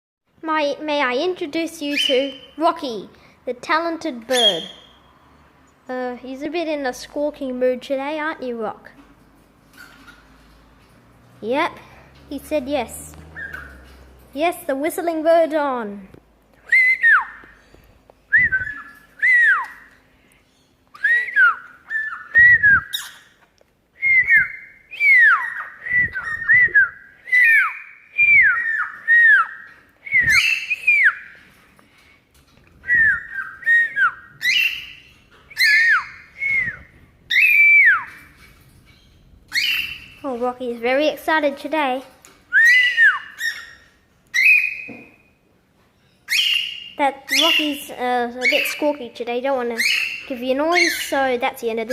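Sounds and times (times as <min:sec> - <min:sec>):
pet bird whistling: 0:01.9 - 0:02.6, 0:04.3 - 0:05.0, 0:13.4 - 0:13.8, 0:16.6 - 0:17.5, 0:18.3 - 0:19.8, 0:20.9 - 0:23.3, 0:24.0 - 0:31.4, 0:32.8 - 0:38.2, 0:39.5 - 0:40.2, 0:42.5 - 0:45.0, 0:46.3 - 0:47.8.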